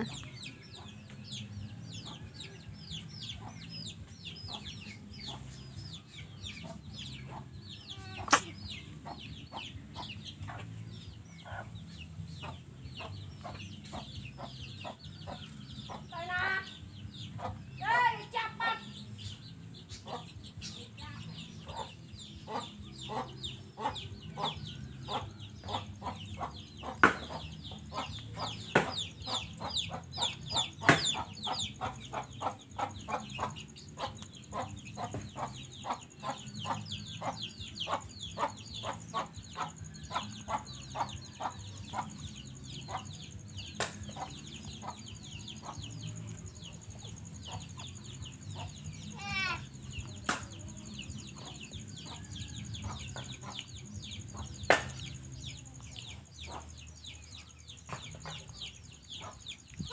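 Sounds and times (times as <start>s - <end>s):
poultry clucking and peeping: 0.0s - 59.9s.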